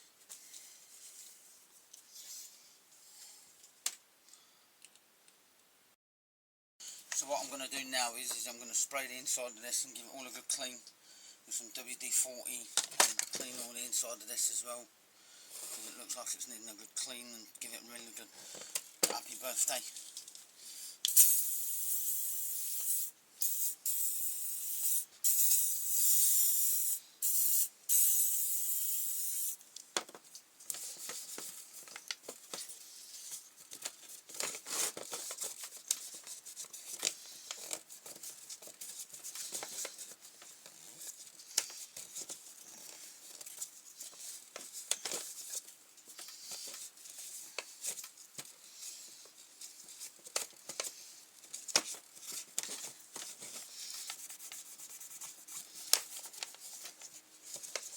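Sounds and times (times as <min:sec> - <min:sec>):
aerosol can spraying: 0:21.1 - 0:29.6.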